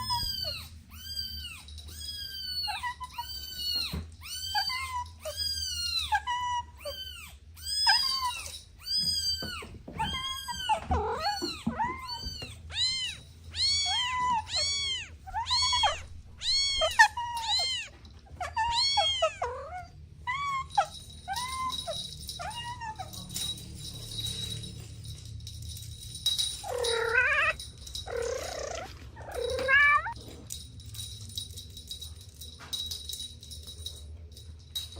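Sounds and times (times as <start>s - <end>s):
kittens meowing: 0.0s - 23.4s, 26.6s - 30.2s.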